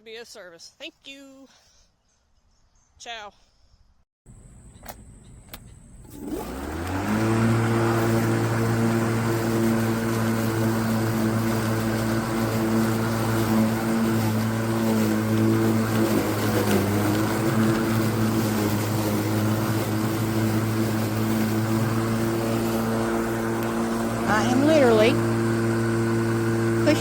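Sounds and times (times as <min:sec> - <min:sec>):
electric lawn mower running: 0:05.9 - 0:27.0.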